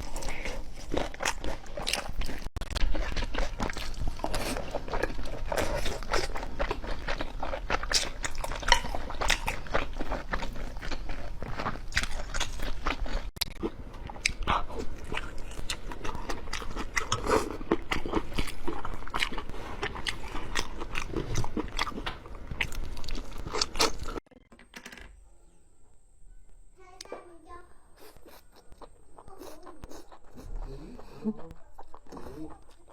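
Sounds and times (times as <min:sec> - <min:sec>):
crunchy bites and chewing: 0:00.0 - 0:24.2.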